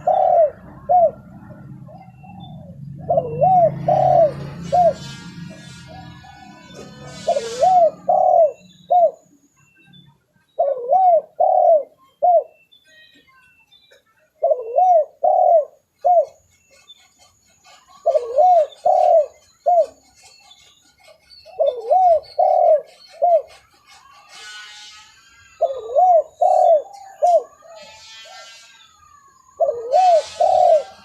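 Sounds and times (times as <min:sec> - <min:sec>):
dove cooing: 0:00.0 - 0:05.2, 0:05.9 - 0:09.3, 0:10.6 - 0:12.6, 0:14.4 - 0:16.4, 0:17.6 - 0:20.0, 0:21.6 - 0:23.8, 0:25.6 - 0:28.4, 0:29.4 - 0:31.0.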